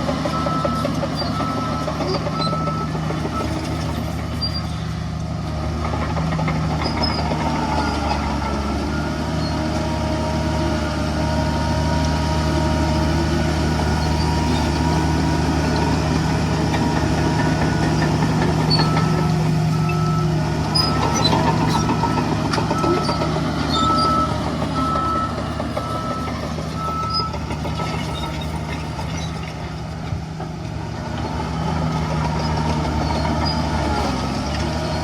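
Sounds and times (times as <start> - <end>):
heavy diesel engine running: 0.0 - 35.0.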